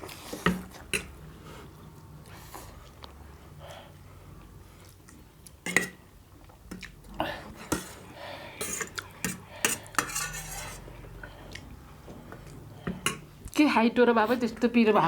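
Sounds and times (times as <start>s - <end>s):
utensils clinking on dishes: 8.6s - 10.9s.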